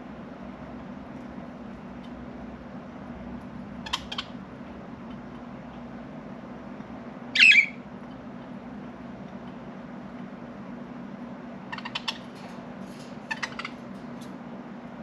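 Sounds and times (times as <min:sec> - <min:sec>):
steady low hum: 0:00.0 - 0:15.0
budgerigars chirping: 0:03.8 - 0:04.4, 0:07.4 - 0:07.8, 0:11.7 - 0:12.3, 0:13.3 - 0:13.8
budgerigar squawk: 0:07.4 - 0:07.8.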